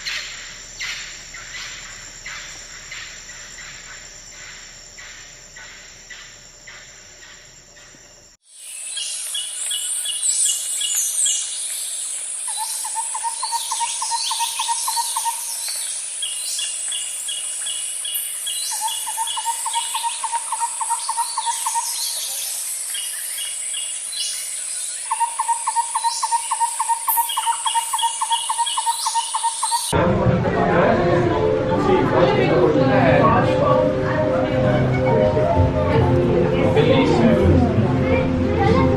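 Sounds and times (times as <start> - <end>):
high-pitched insect drone: 0.0 - 30.0
bird chirps and calls: 8.7 - 29.9.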